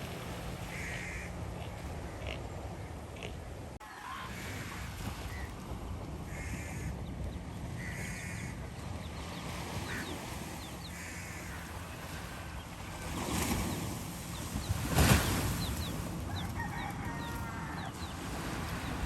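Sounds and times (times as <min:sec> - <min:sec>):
harsh bird calls: 0:06.3 - 0:19.0.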